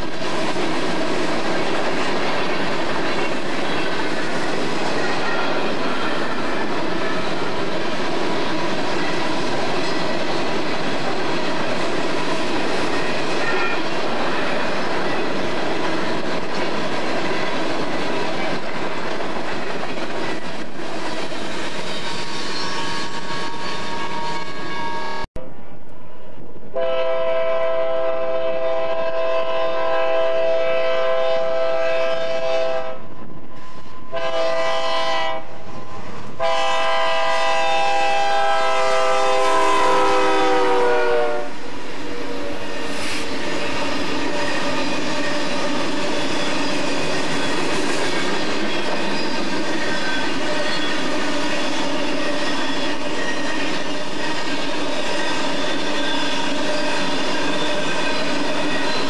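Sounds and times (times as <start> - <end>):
train cars clacking on rails: 0.0 - 24.7, 36.4 - 59.0
locomotive horn blasts: 13.4 - 13.9, 26.8 - 33.0, 34.1 - 35.6, 36.4 - 41.6.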